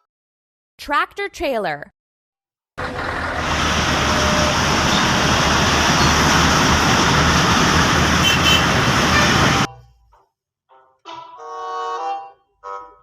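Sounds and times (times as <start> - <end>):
road noise hiss: 2.8 - 9.9
truck engine rumbling: 2.8 - 10.0.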